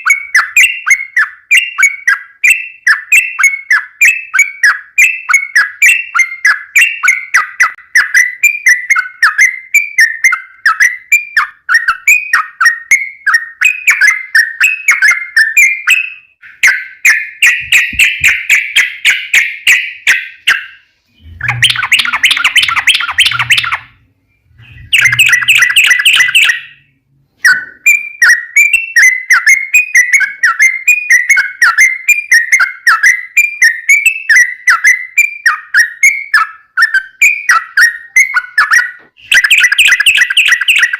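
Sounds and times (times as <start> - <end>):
bird chirping song: 0.0 - 40.9
bird chatter: 15.8 - 26.8, 37.5 - 40.9.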